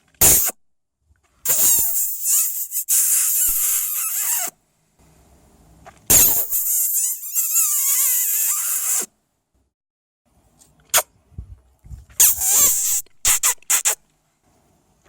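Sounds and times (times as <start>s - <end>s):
hedgehog huffing and hissing: 0.2s - 0.5s, 1.4s - 4.5s, 6.1s - 9.1s, 12.2s - 14.0s.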